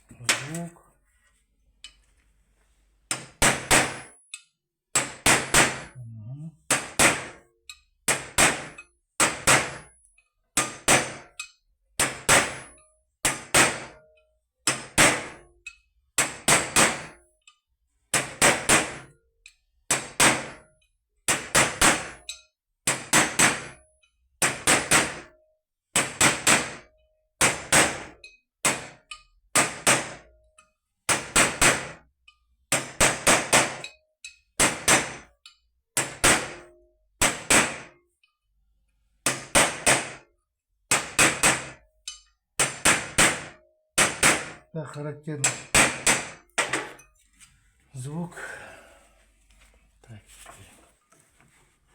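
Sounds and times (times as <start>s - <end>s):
hammer striking metal: 3.1s - 4.4s, 8.1s - 10.0s, 10.6s - 14.1s, 36.0s - 38.0s, 45.4s - 47.1s.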